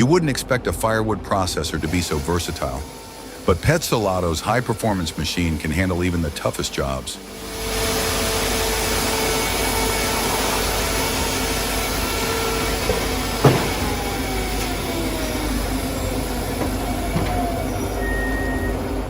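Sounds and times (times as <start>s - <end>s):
firewood processor humming: 0.8s - 19.0s
falling whine: 1.6s - 19.0s
sharp knock: 12.9s - 13.9s.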